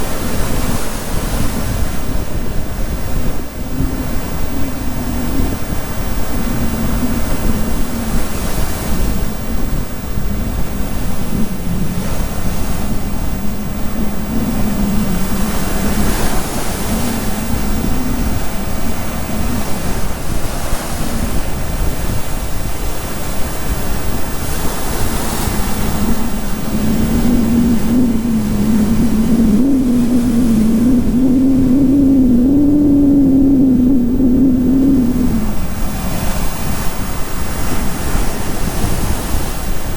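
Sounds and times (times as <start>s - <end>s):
wind buffeting microphone: 0.0s - 39.9s
engine humming: 25.6s - 35.7s.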